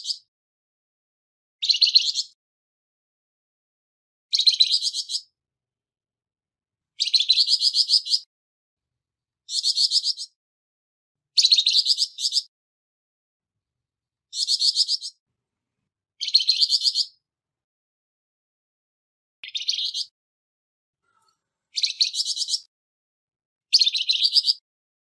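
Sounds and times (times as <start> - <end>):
songbird harsh rattling calls: 1.6 - 2.3, 4.3 - 5.3, 7.0 - 8.3, 9.5 - 10.4, 11.4 - 12.5, 14.3 - 15.2, 16.2 - 17.2, 19.4 - 20.1, 21.0 - 22.7, 23.7 - 24.6.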